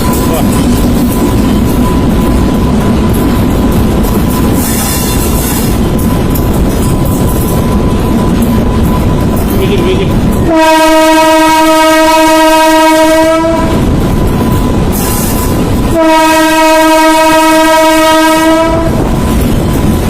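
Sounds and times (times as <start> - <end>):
moving train rumble: 0.0 - 20.0
train horn blasts: 10.3 - 13.9, 14.9 - 19.1.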